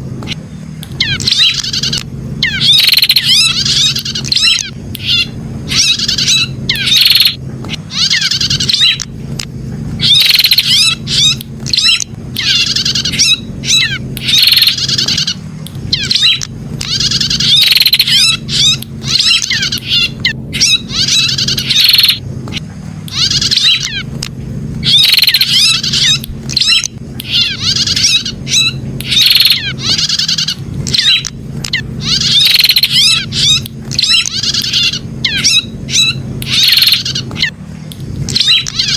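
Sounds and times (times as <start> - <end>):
low steady hum: 0.0 - 38.9
bird rapid high chirping: 0.2 - 9.1, 10.0 - 37.6, 38.2 - 38.9.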